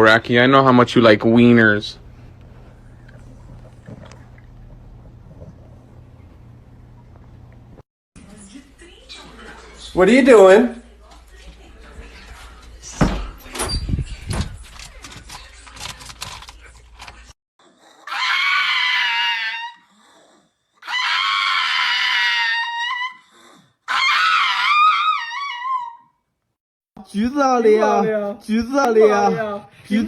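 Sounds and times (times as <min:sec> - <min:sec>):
dog screaming: 0:17.7 - 0:26.2.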